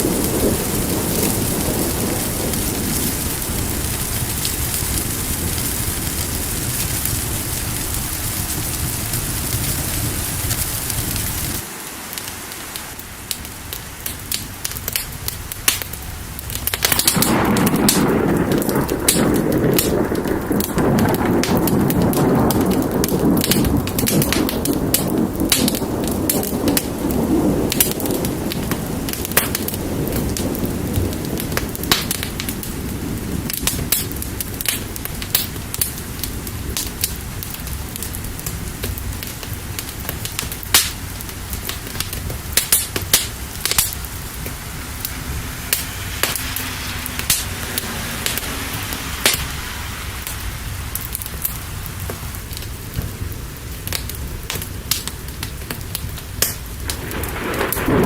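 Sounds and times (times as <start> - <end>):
steady rain: 0.0 - 58.0
wood fire crackling and popping: 0.0 - 58.0
low rumble: 13.4 - 58.0.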